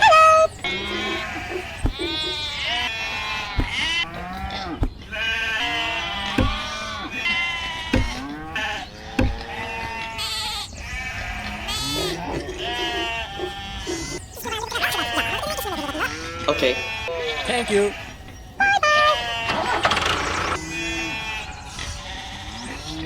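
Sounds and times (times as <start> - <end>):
animal bleating: 0.0 - 23.0
sharp knock: 3.6 - 3.9, 6.4 - 6.7, 7.9 - 8.2, 9.2 - 9.4.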